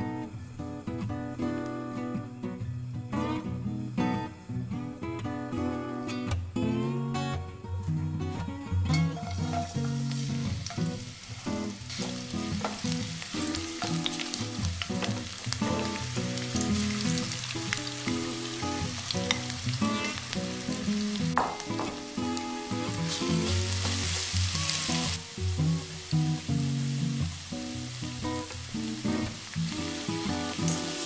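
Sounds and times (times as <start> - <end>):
garlic sizzling in oil: 9.0 - 31.0
oil crackling and popping: 9.2 - 26.5, 27.2 - 31.0.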